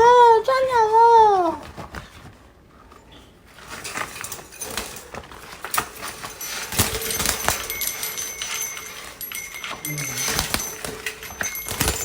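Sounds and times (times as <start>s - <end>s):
metallic clicking and clattering: 3.6s - 12.0s.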